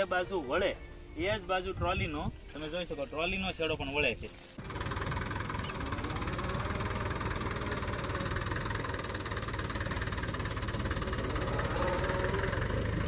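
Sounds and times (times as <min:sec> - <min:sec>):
diesel tractor engine knocking: 0:04.6 - 0:13.0.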